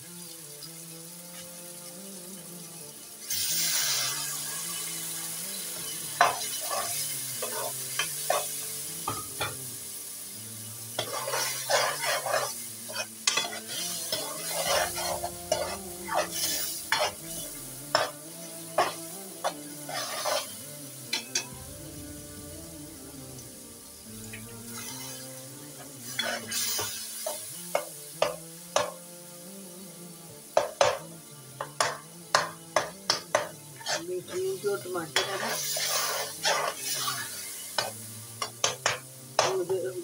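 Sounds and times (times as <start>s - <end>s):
onions sizzling in oil: 0.0s - 40.0s
metal spatula scraping pot: 11.0s - 18.2s, 18.8s - 21.5s, 33.1s - 34.6s, 35.2s - 39.5s.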